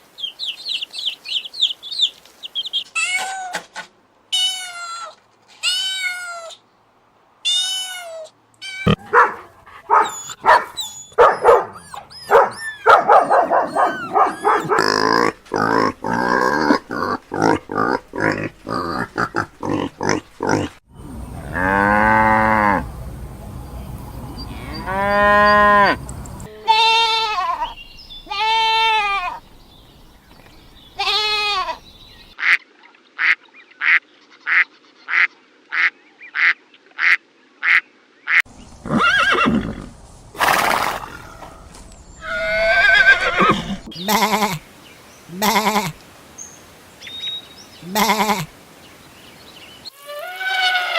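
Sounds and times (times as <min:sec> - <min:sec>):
farm animal calls: 0:07.5 - 0:29.6, 0:30.3 - 0:32.6, 0:40.7 - 0:44.7, 0:45.3 - 0:46.0, 0:47.8 - 0:48.6.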